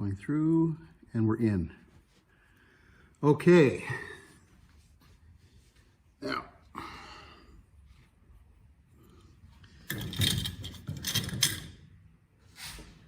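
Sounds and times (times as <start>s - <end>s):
metal parts clattering and scraping: 9.6s - 11.9s.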